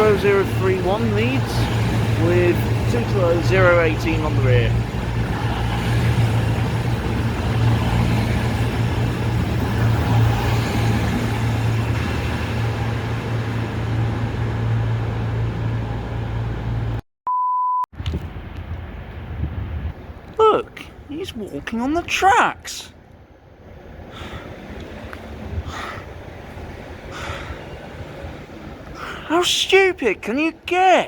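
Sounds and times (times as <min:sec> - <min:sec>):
train diesel engines droning: 0:00.0 - 0:17.0, 0:21.1 - 0:30.8
short electronic beep: 0:17.3 - 0:17.9.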